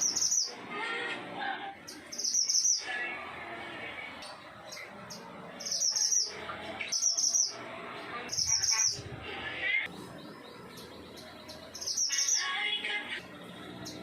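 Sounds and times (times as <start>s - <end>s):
bird trill: 0.0s - 0.6s, 1.9s - 2.9s, 4.7s - 7.6s, 8.3s - 9.0s, 10.2s - 12.7s
bird twittering: 0.0s - 0.6s, 1.9s - 2.8s, 4.7s - 7.6s, 10.0s - 12.6s.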